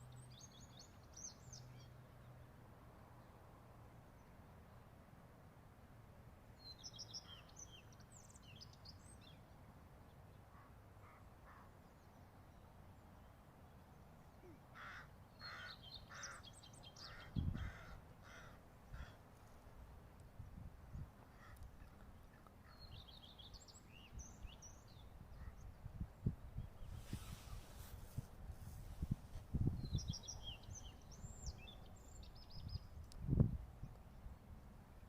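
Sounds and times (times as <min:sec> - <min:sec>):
short harsh bird calls: 0:14.4 - 0:19.2.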